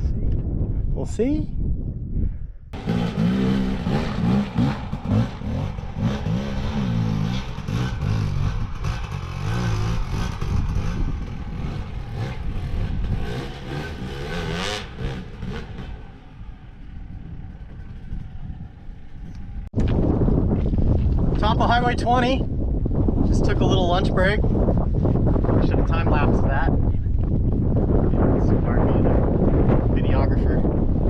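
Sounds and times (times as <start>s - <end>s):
dirt bike engine revving: 2.8s - 19.7s.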